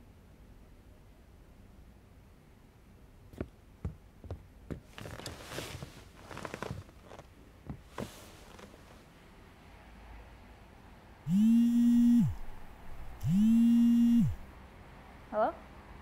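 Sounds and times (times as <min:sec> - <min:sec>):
rustling of things handled: 0:04.7 - 0:09.1.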